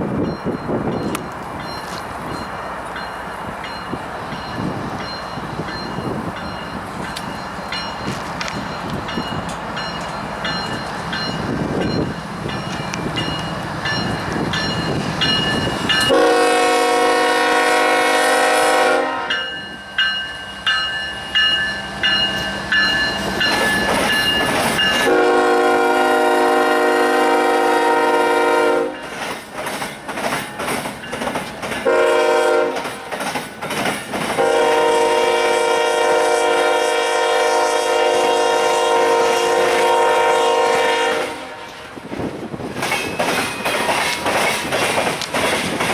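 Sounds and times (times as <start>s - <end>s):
train rumble and wheel noise: 0.0s - 45.9s
bell ringing: 0.2s - 16.1s, 19.3s - 25.1s
locomotive air horn blasts: 16.0s - 19.6s, 25.0s - 29.0s, 31.8s - 32.8s, 34.4s - 41.8s.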